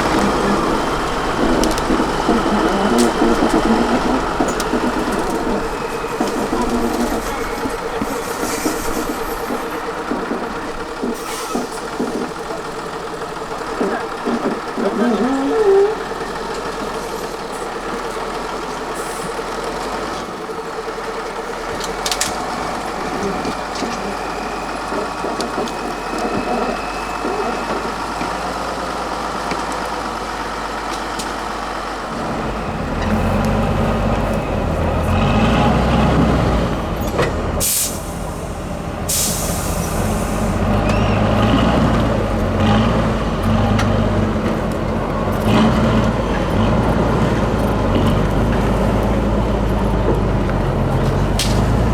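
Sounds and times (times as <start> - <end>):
air brake hisses: 0.0 - 14.8, 37.6 - 40.8
truck diesel engine running: 0.0 - 51.9.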